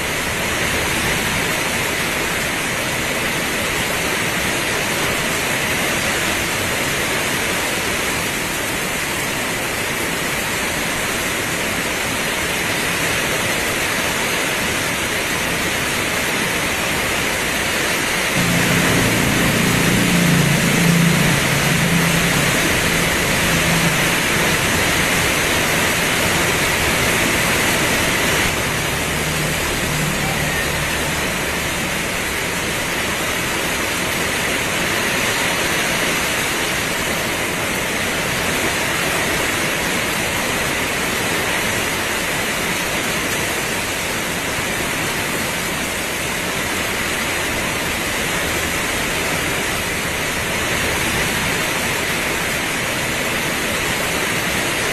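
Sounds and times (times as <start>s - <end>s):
heavy rain: 0.0s - 54.9s
low hum: 18.4s - 33.5s.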